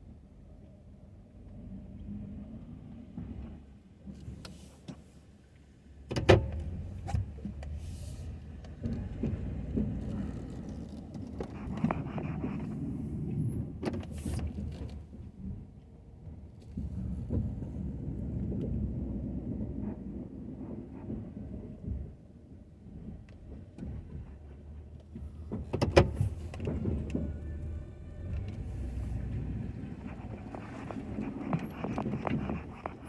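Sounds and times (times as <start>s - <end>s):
pickup truck engine rumbling: 6.4s - 15.6s, 22.9s - 33.0s.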